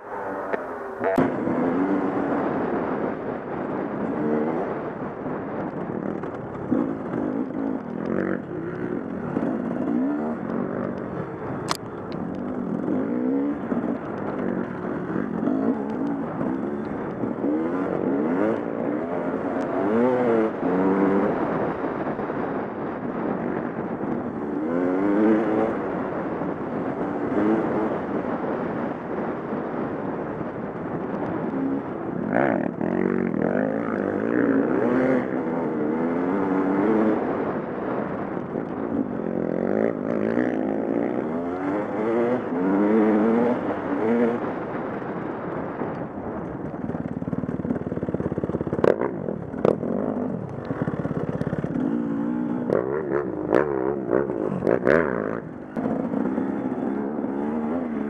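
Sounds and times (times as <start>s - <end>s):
dirt bike engine revving: 6.0s - 11.3s, 31.4s - 38.1s, 39.2s - 44.6s, 48.0s - 58.0s.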